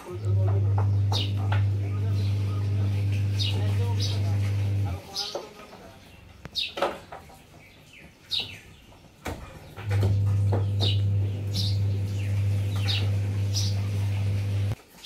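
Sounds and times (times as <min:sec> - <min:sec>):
loud low hum: 0:00.0 - 0:05.0, 0:09.9 - 0:14.8.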